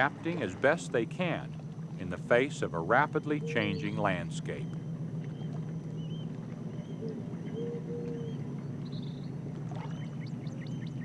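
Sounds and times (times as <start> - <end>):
steady low drone: 0.0 - 11.0
bird chirps: 4.6 - 11.0.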